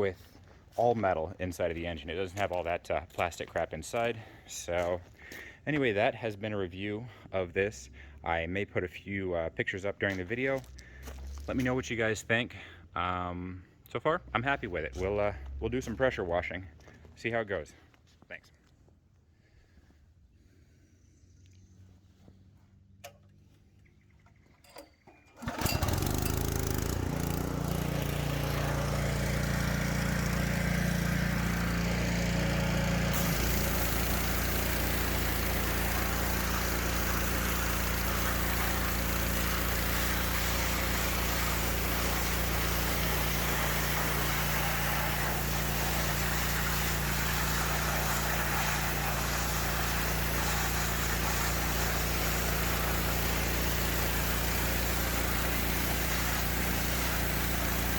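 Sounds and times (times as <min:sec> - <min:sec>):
small engine running: 0:25.3 - 0:57.9.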